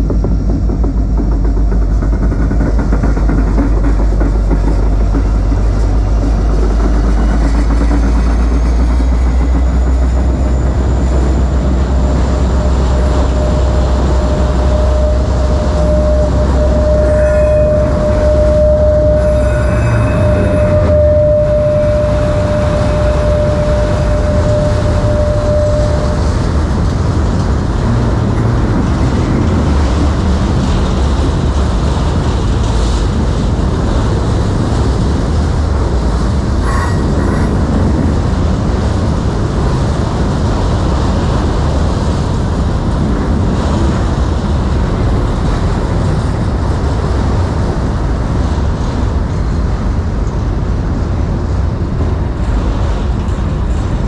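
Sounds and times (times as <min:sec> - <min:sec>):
wheel squeal: 0:00.0 - 0:33.1, 0:33.8 - 0:39.8
steel wheels rumbling on rail: 0:00.0 - 0:54.0.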